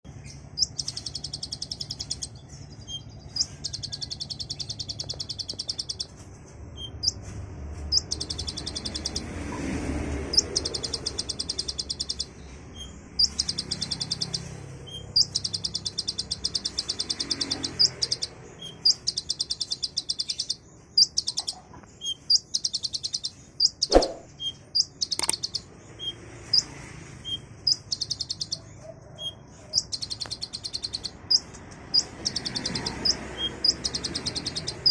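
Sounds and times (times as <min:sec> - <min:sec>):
bird singing high trills: 0:00.2 - 0:06.2, 0:07.9 - 0:09.3, 0:10.3 - 0:34.9
sharp clicks: 0:25.0 - 0:25.6.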